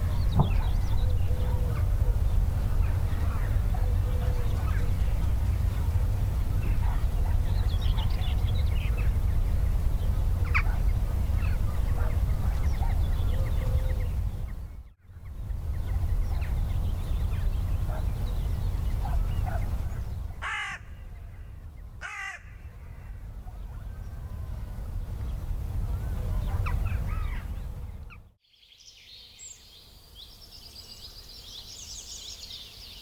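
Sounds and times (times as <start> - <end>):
low rumble: 0.0 - 22.0
loud harsh bird calls: 10.2 - 24.3, 25.3 - 28.2.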